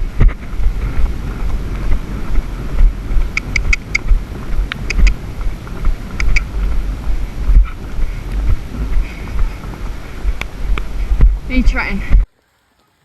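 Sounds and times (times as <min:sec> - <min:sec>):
wind buffeting microphone: 0:00.0 - 0:12.3
sharp high clicks: 0:03.4 - 0:04.1, 0:04.7 - 0:05.2, 0:06.2 - 0:06.5.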